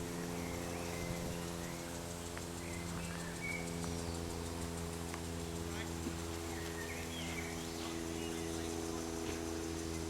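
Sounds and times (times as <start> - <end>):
steady low hum: 0.0 - 10.0
faint bird chirps: 6.4 - 10.0.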